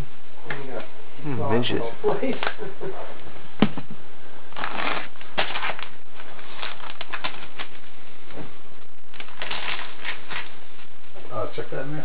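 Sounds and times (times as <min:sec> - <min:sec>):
rustling: 0:04.5 - 0:11.2.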